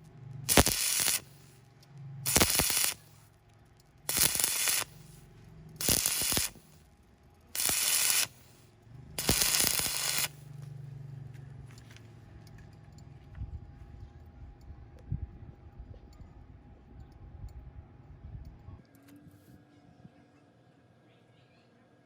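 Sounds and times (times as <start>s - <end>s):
welding machine hum: 0.0s - 13.1s
welding arc crackling: 0.1s - 10.8s.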